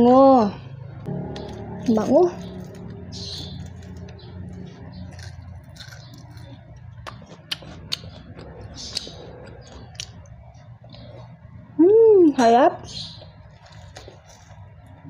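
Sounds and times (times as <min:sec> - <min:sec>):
person chewing food: 0:01.1 - 0:11.5, 0:13.2 - 0:15.0
sharp crunches: 0:01.3 - 0:08.1.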